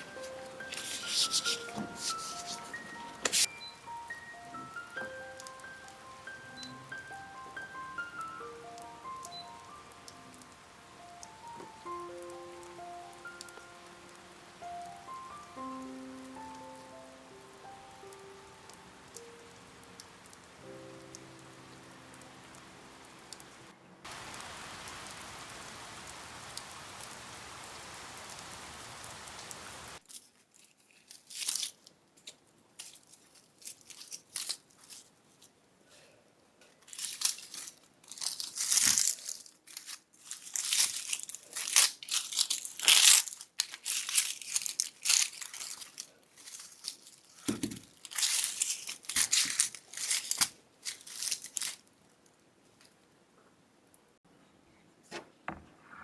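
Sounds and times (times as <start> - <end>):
crinkling and crunching handling: 0.0 - 3.6, 30.0 - 35.6, 36.6 - 53.0
rain hiss: 0.0 - 30.0.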